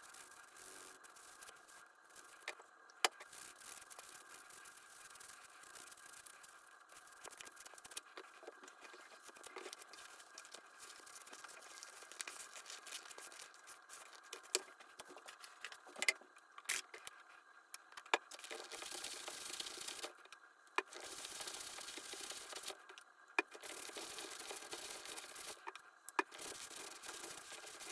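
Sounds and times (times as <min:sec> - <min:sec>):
leather rustling and scraping: 0:08.5 - 0:15.9.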